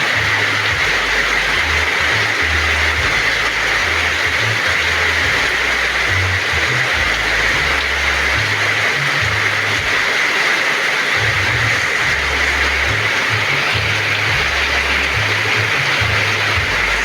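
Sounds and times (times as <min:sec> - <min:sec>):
heavy rain falling: 0:00.0 - 0:17.0
low rumble: 0:11.2 - 0:17.0.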